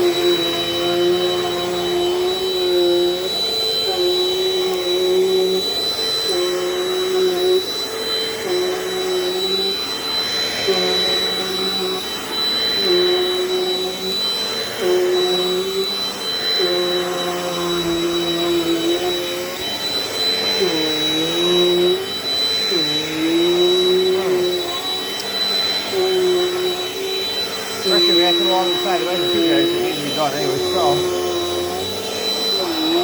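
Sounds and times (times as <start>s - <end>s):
vacuum cleaner running: 0.0s - 33.0s.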